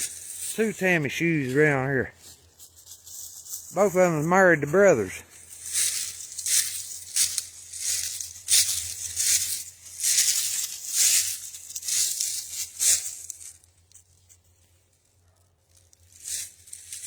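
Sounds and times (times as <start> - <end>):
footsteps crunching on dry litter: 0.0 - 17.0.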